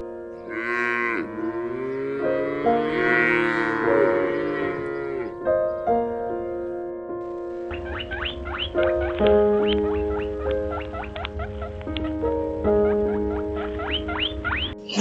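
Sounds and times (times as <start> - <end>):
instrumental background music: 0.0 - 15.0
cow mooing: 0.4 - 5.4.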